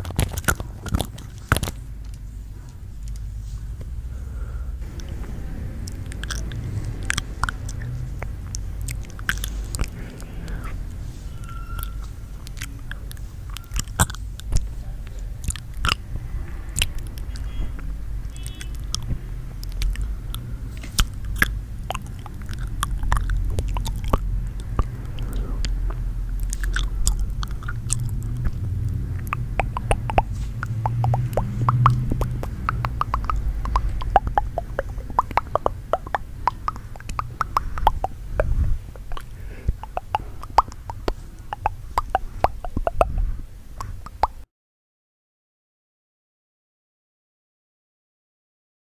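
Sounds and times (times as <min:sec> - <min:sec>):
crisp clicks and crackles: 0:00.0 - 0:02.3, 0:04.8 - 0:11.0, 0:18.4 - 0:43.2
steady low rumble: 0:00.0 - 0:44.4.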